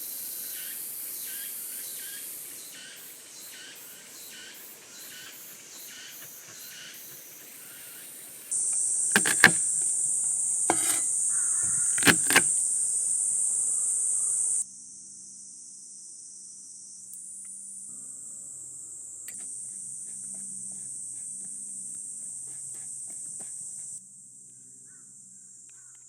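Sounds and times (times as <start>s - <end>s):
sharp clicks: 9.2s - 9.7s, 12.0s - 12.5s.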